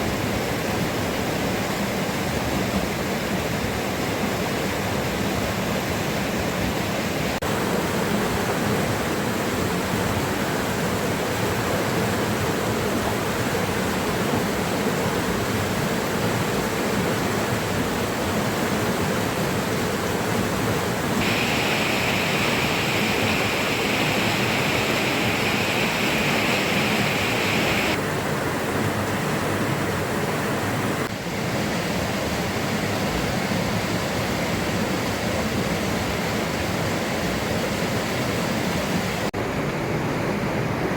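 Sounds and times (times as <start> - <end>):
water rushing: 0.0 - 40.9
bright hiss: 21.2 - 28.0.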